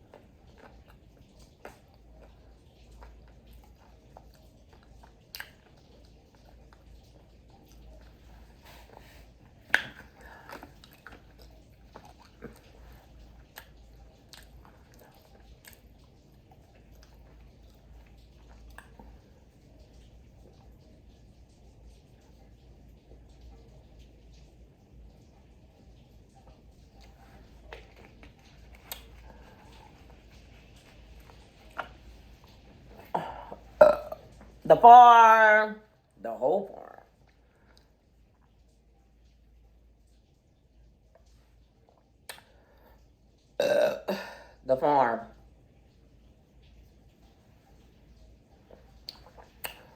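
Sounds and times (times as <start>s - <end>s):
chewing crispy food: 0.0s - 34.7s, 45.3s - 49.9s
mouth smacks: 4.2s - 5.8s, 42.2s - 42.5s, 49.0s - 49.9s
mouth smacking: 32.9s - 34.4s, 49.0s - 49.9s.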